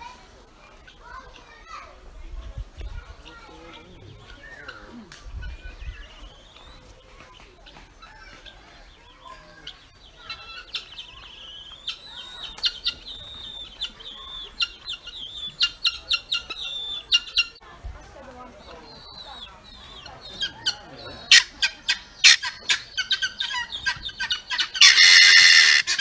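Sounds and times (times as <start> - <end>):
sharp bird chirps: 8.0 - 17.6
bird high fast trill: 20.6 - 26.0.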